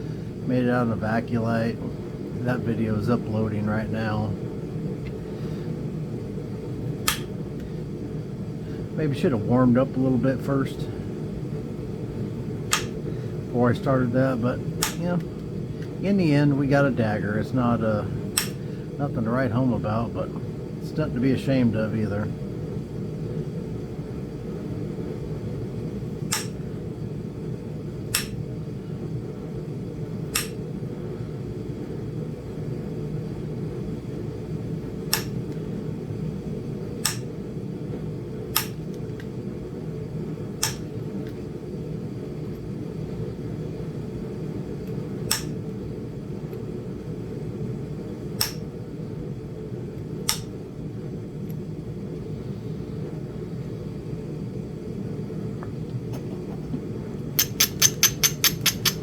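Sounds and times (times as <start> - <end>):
steady low hum: 0.0 - 59.0
stone knapping clicks: 7.0 - 7.4, 12.7 - 13.0, 14.8 - 15.9, 18.4 - 18.6, 26.3 - 26.6, 28.1 - 28.4, 30.4 - 30.6, 35.1 - 35.4, 37.0 - 37.3, 38.6 - 38.9, 40.6 - 40.9, 45.3 - 45.6, 48.4 - 48.6, 57.4 - 59.0.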